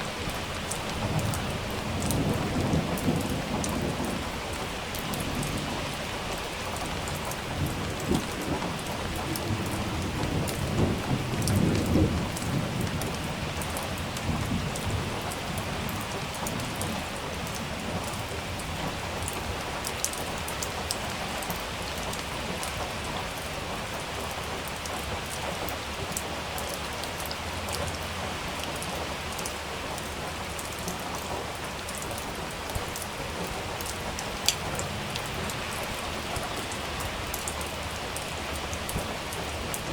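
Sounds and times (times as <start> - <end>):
thunder rumbling low: 0.0 - 18.4
heavy rain pattering: 0.0 - 39.9.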